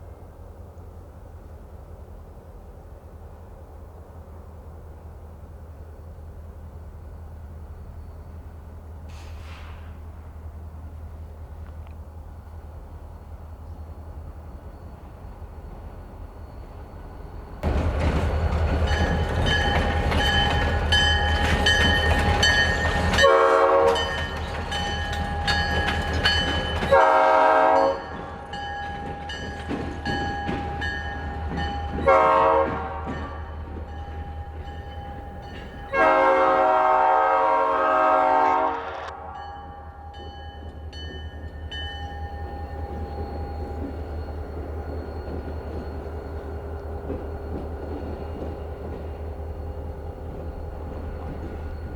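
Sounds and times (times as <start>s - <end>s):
locomotive engines running: 11.3s - 26.9s, 33.1s - 36.1s, 40.6s - 51.9s
locomotive horn blasts: 23.2s - 24.1s, 26.9s - 28.1s, 32.0s - 33.2s, 35.9s - 39.4s.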